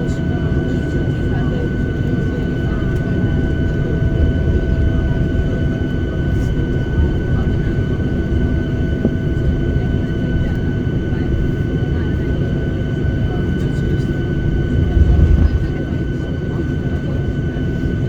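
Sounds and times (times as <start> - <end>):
aircraft cabin engine rumble: 0.0 - 18.0
high engine whine: 14.6 - 16.0.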